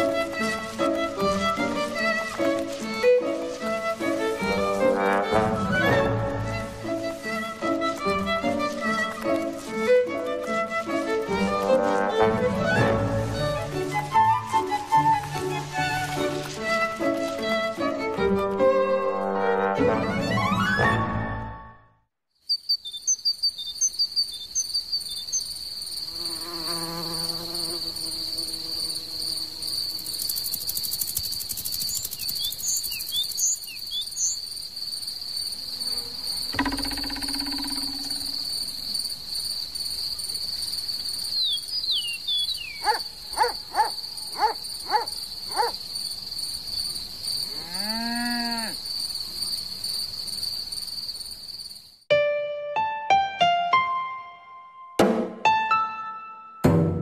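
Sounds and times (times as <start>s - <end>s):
high-pitched insect trill: 22.5s - 52.1s.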